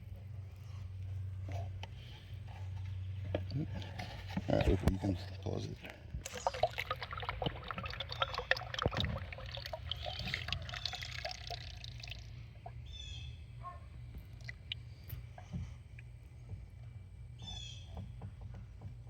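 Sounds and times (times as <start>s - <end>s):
oil pouring and gurgling: 1.4s - 13.0s, 14.3s - 15.5s.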